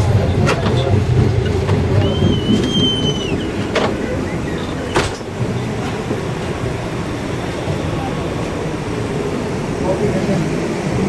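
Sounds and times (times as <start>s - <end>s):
sharp train clacks: 0.0s - 8.8s
train rumble: 0.0s - 11.0s.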